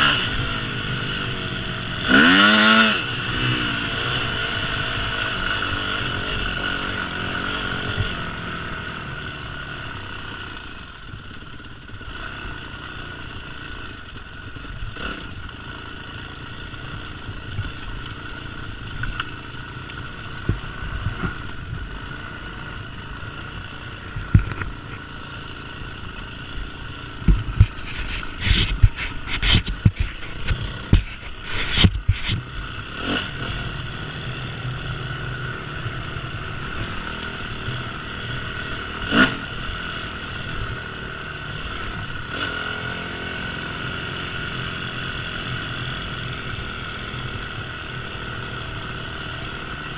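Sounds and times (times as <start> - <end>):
dirt bike engine running: 0.0 - 49.9
sharp knocks and thumps: 27.2 - 32.4.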